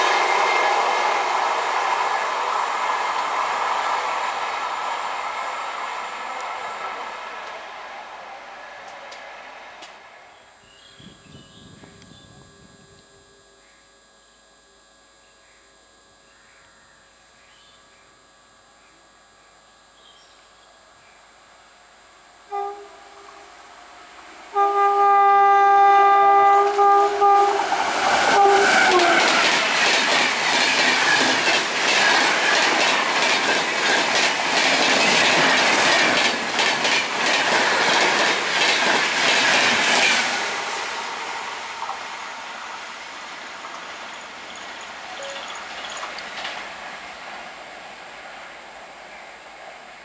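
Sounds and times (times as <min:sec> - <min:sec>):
train horn: 0:00.0 - 0:01.4, 0:22.4 - 0:30.0, 0:40.0 - 0:43.0
train wheels clattering: 0:27.6 - 0:40.6, 0:43.5 - 0:46.9.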